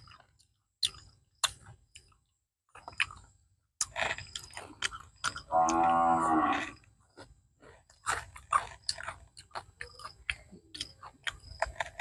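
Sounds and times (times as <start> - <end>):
wet chewing and lip-smacking: 0.0 - 5.9, 7.1 - 12.0.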